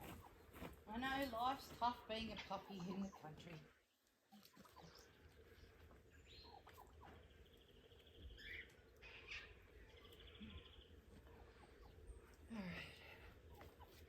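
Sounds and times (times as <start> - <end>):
birds chirping: 0.0 - 14.0
rapid bird trills: 4.3 - 12.3.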